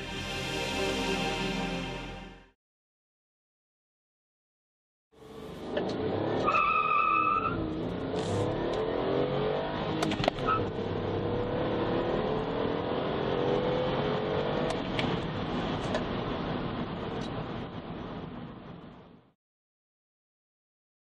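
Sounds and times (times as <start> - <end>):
car engine accelerating: 7.4 - 18.0.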